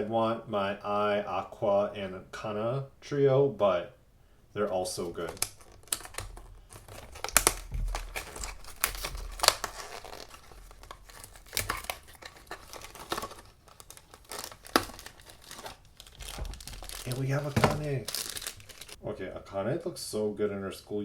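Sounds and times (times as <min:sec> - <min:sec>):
packaging being torn open: 0:05.0 - 0:19.0.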